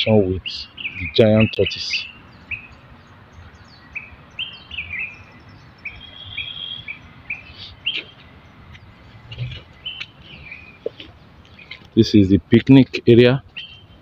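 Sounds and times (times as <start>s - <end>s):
small birds chirping: 0.0s - 14.0s
bird whistled note: 5.9s - 8.1s.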